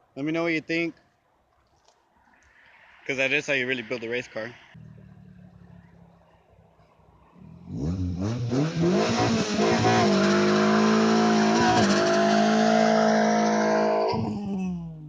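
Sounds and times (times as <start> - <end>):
car engine revving: 7.3 - 14.6.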